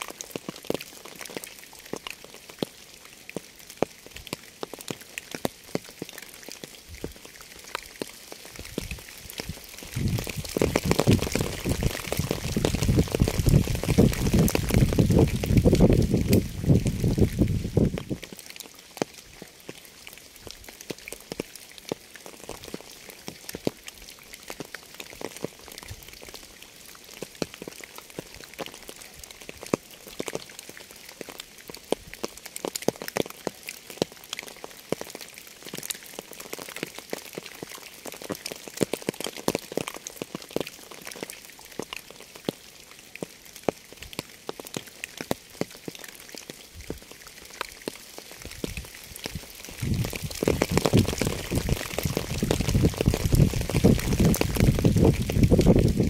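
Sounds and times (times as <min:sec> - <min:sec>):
steady rain hiss: 0:00.0 - 0:56.0
raindrop hits: 0:08.5 - 0:18.4, 0:48.4 - 0:56.0.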